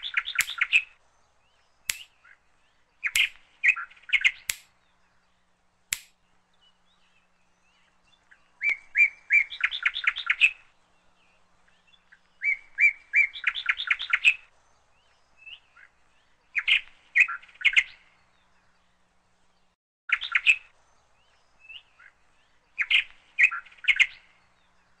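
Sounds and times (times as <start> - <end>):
bird chirping: 0.0 - 25.0
sharp click: 0.4 - 0.7, 3.1 - 3.4, 4.5 - 4.7, 5.9 - 6.2.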